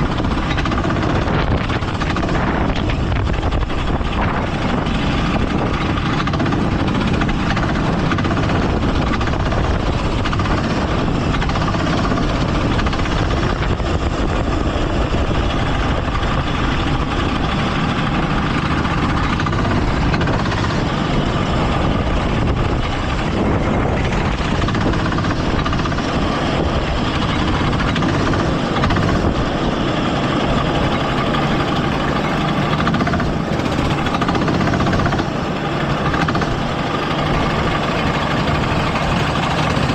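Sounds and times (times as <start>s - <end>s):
go-kart engine running: 0.0s - 39.9s
loud rush of wind noise: 0.0s - 39.9s.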